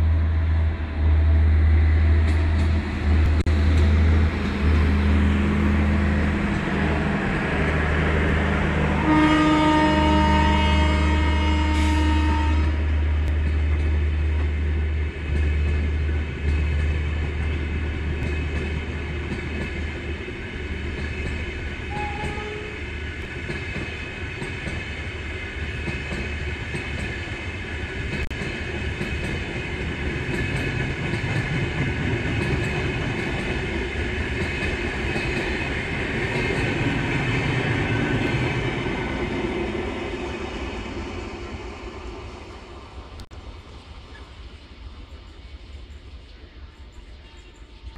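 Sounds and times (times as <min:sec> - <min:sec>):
train wheels rumbling on rails: 0:00.0 - 0:47.9
train horn blast: 0:08.6 - 0:13.4, 0:21.9 - 0:22.9.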